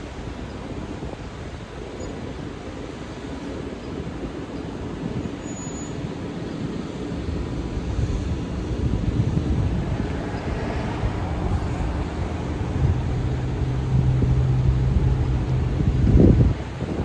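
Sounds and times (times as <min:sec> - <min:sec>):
bus and traffic passing: 0:00.0 - 0:17.0
loud low rumble: 0:09.1 - 0:16.6.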